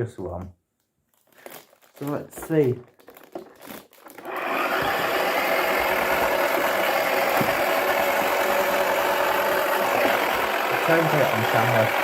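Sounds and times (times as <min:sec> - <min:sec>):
small electric motor whirring: 0:04.2 - 0:12.0.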